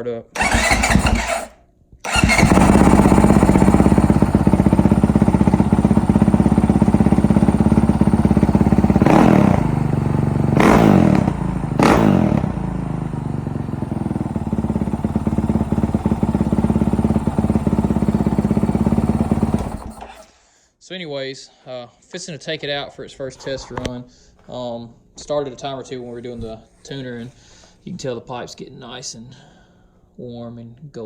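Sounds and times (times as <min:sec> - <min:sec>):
engine revving: 0:00.4 - 0:20.3
motorcycle engine starting and idling: 0:00.4 - 0:20.3.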